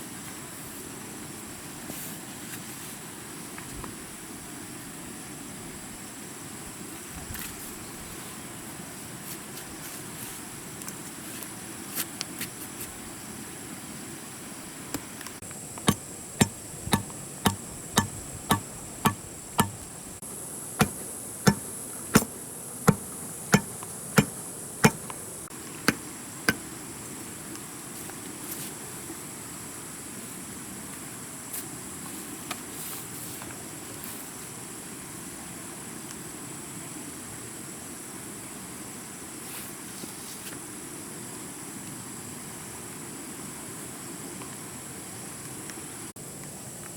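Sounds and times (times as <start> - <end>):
insects buzzing: 0.0 - 46.9
hand tool knocking: 15.8 - 19.9, 20.8 - 22.3, 22.9 - 25.2.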